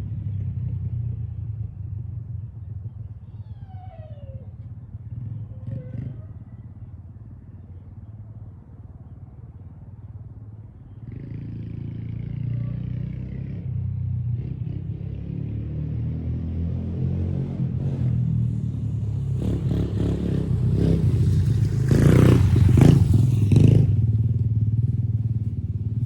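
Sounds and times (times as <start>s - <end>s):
motorcycle engine rumbling: 0.0s - 15.3s, 17.6s - 26.0s.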